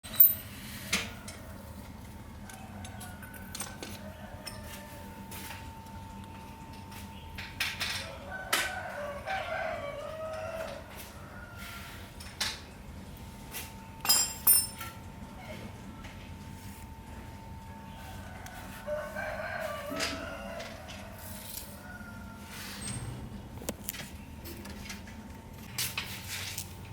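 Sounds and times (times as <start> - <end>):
metal clinks and knocks: 0.0 - 0.5, 14.0 - 15.0.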